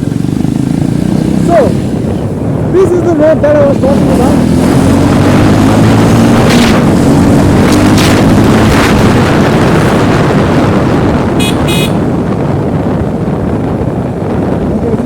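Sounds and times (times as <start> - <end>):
motorcycle engine running: 0.0 - 15.0
wind rushing over microphone: 0.0 - 15.0
short horn toots: 11.4 - 12.1.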